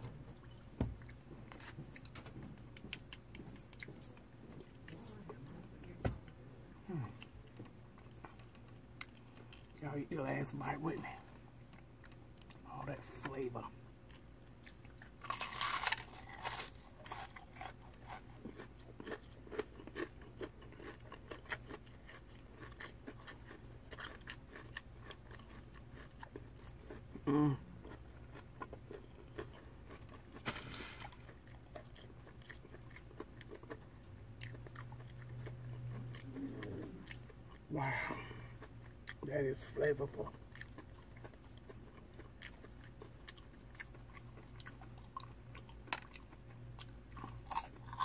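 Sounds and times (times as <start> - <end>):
crunchy chewing: 0.0 - 9.8, 11.0 - 48.0
crunchy bite: 14.9 - 26.3.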